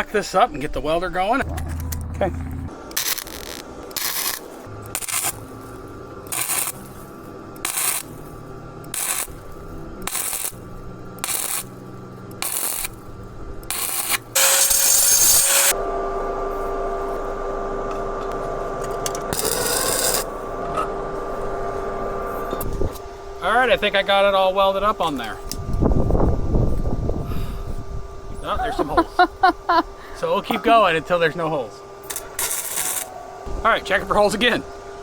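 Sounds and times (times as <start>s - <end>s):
welder humming: 0.0s - 35.0s
electric welder crackling: 1.5s - 15.8s, 18.3s - 20.6s, 28.8s - 35.0s.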